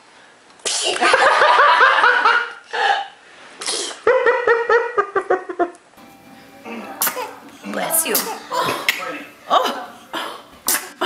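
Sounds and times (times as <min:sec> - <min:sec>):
toddler sneezing: 0:00.6 - 0:01.0, 0:03.6 - 0:04.0, 0:06.9 - 0:07.4, 0:08.1 - 0:08.9, 0:10.1 - 0:11.0
toddler laughing: 0:07.0 - 0:07.4.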